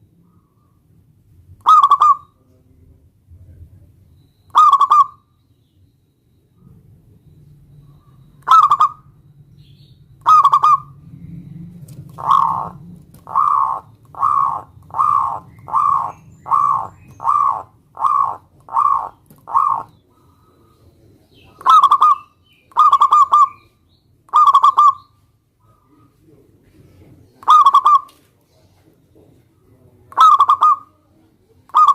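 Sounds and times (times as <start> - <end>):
faint low hum: 0.0 - 31.8
dove cooing: 1.6 - 2.4, 4.5 - 5.2, 7.8 - 9.2, 10.2 - 26.5, 27.3 - 28.2, 29.6 - 31.9.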